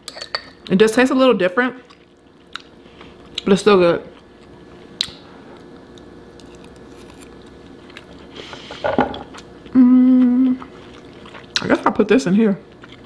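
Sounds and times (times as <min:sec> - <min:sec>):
person chewing food: 0:01.9 - 0:03.5, 0:04.2 - 0:08.3, 0:09.2 - 0:11.7, 0:12.7 - 0:13.0
person humming mmm: 0:09.7 - 0:10.7.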